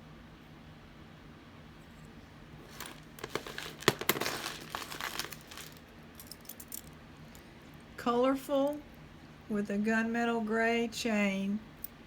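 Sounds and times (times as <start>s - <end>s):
crinkling plastic: 2.6s - 6.9s.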